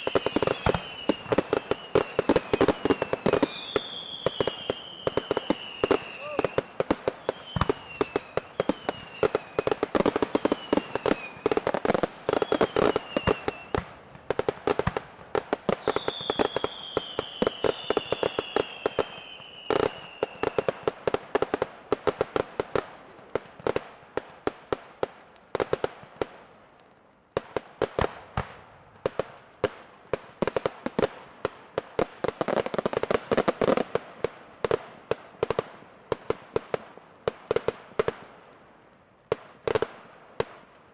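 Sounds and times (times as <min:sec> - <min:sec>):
fireworks whistles falling: 0:00.0 - 0:13.9, 0:15.7 - 0:20.9
fireworks bangs and crackles: 0:00.0 - 0:40.9.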